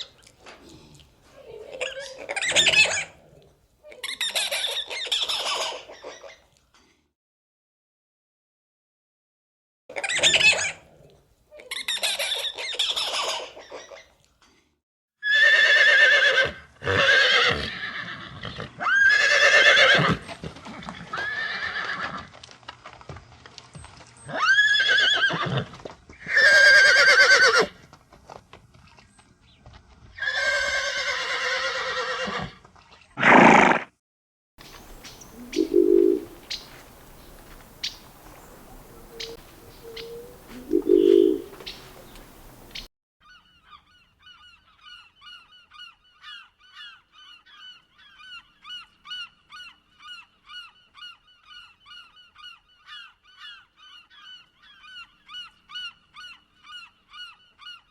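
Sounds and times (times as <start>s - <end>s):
horses whinnying: 15.2s - 22.3s, 24.3s - 27.7s, 30.2s - 32.6s, 33.2s - 33.9s
low coos: 35.3s - 36.4s, 38.5s - 41.6s.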